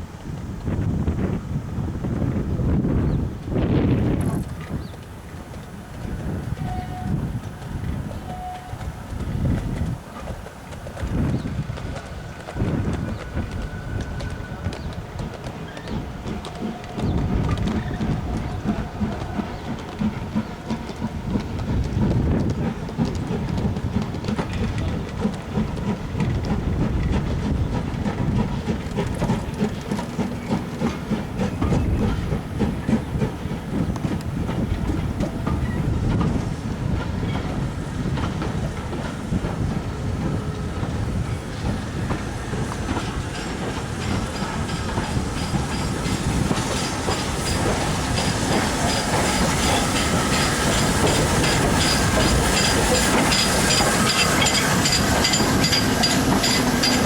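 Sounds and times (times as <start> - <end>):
train rumble: 0.0 - 57.0
train wheels clicking over rail joints: 3.4 - 57.0.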